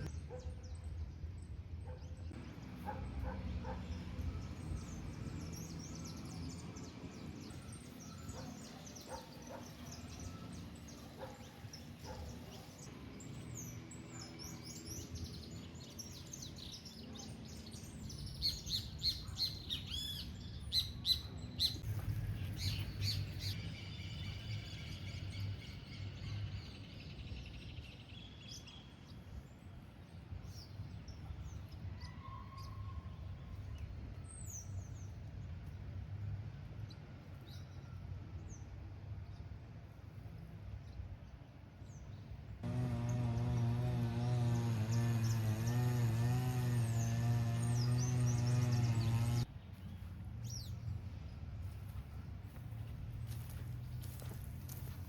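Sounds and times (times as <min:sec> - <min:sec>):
birds chirping and calling: 0:01.9 - 0:27.4, 0:42.7 - 0:50.8.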